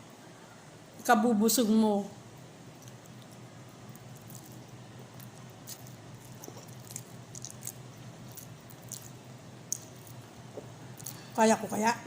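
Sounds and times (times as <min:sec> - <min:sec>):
person chewing noodles: 0:02.7 - 0:11.4.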